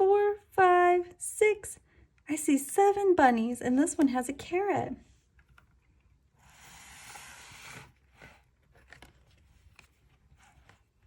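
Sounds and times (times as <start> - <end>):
page being turned: 6.7 - 11.0.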